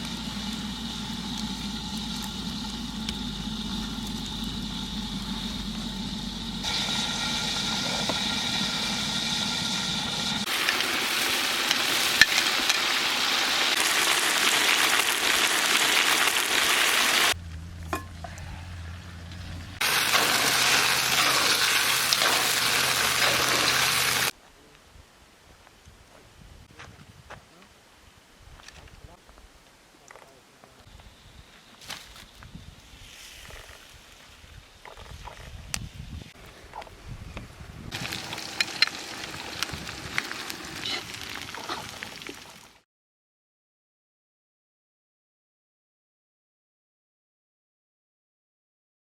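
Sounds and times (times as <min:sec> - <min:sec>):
steady hum with held tones: 0:00.0 - 0:10.4
chicken sizzling in hot oil: 0:00.0 - 0:17.4, 0:19.8 - 0:24.3, 0:37.9 - 0:42.8.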